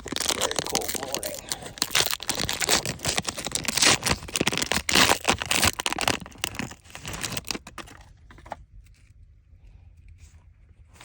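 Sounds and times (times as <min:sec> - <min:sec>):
wrapper tearing and crinkling: 0:00.0 - 0:08.0
cards rustling and clicking: 0:00.0 - 0:09.0.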